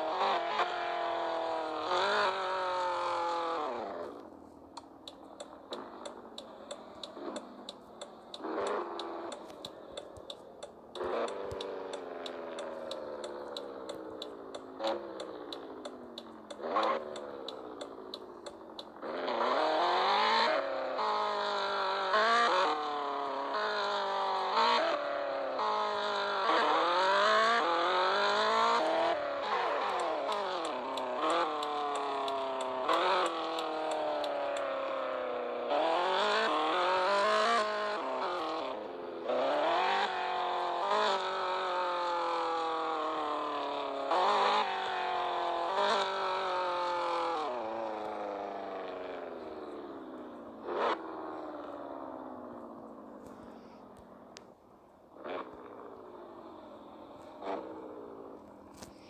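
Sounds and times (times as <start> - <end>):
car engine accelerating: 0.0 - 59.0
rapid ticking: 0.6 - 19.6, 27.3 - 35.3.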